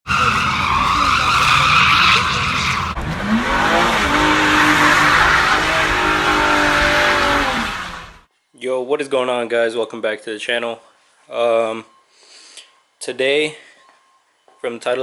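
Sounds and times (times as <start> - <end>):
tires squealing: 0.0 - 8.2
car engine revving: 0.0 - 8.3.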